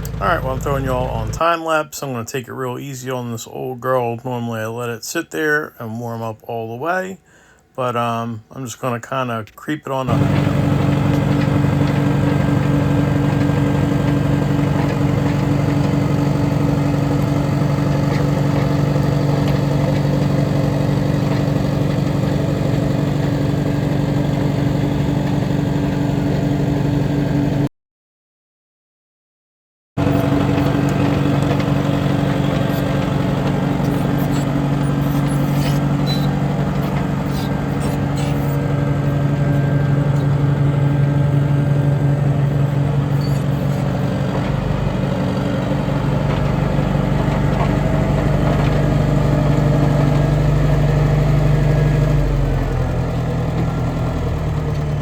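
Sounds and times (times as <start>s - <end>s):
loader engine idling: 0.0s - 1.4s, 10.1s - 27.5s, 30.0s - 55.0s.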